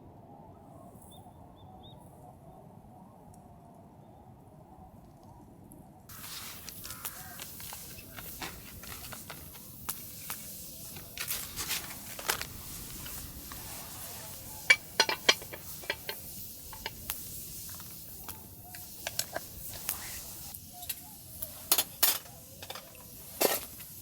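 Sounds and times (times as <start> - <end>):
cookware clicks and knocks: 14.7 - 17.0.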